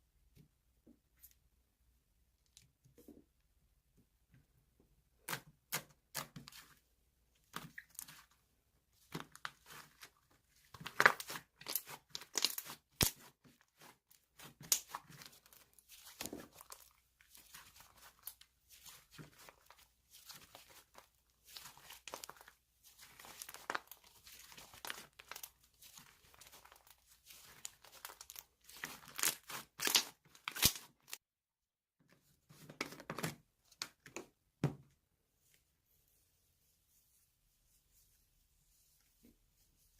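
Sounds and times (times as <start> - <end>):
packaging being torn and crinkled: 28.0 - 31.2.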